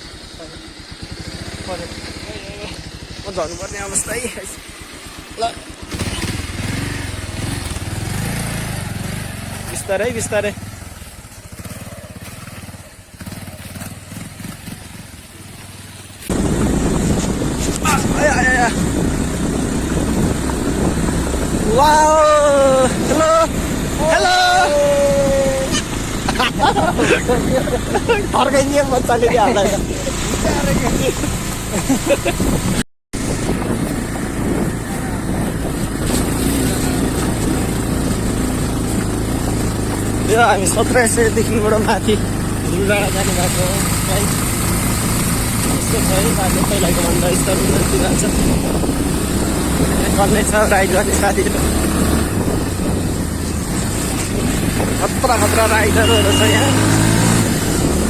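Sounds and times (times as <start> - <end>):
motorcycle engine at low revs: 0.0 - 58.0
loud rush of noise: 16.2 - 58.0.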